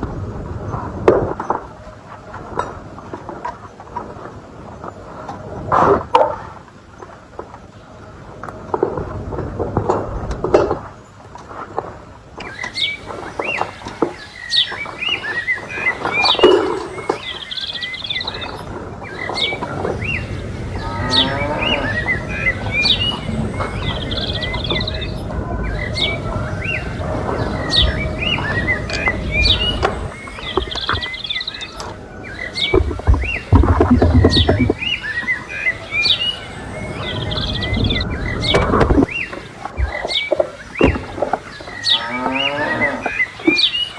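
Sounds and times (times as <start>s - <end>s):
small birds chirping: 10.0s - 43.9s
steady low rumble: 18.0s - 40.0s.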